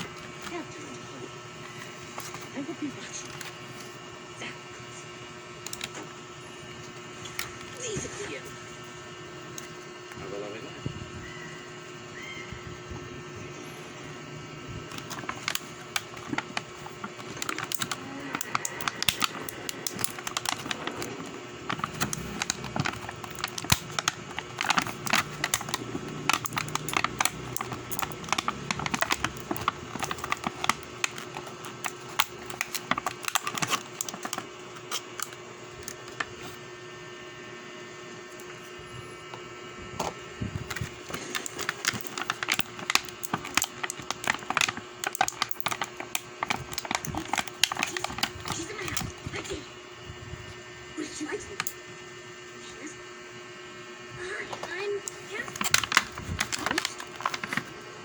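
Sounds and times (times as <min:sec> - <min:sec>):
steady low hum: 0:00.0 - 0:58.0
rapid clicking and tapping: 0:14.9 - 0:35.3, 0:40.7 - 0:49.2, 0:55.5 - 0:57.7.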